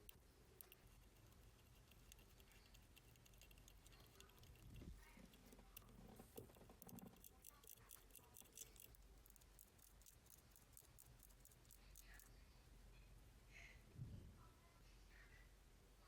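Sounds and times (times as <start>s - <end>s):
mechanical watch ticking: 0.0s - 12.3s.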